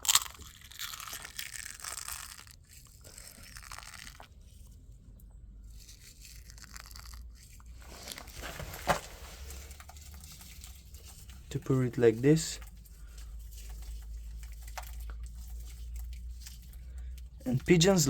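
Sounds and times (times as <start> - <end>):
egg shell cracking: 0.0 - 4.6, 5.7 - 7.8
rustling of grain feed: 0.2 - 18.0.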